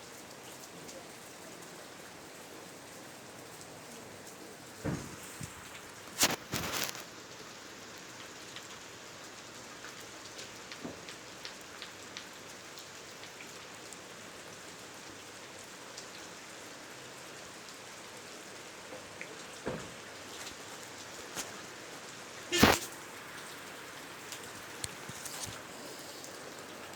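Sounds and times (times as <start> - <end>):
faint scattered ticks: 0.2 - 14.2, 15.9 - 26.9
steady hiss: 0.5 - 13.8, 15.2 - 26.9
burst of rustling: 4.8 - 7.1, 22.5 - 23.6.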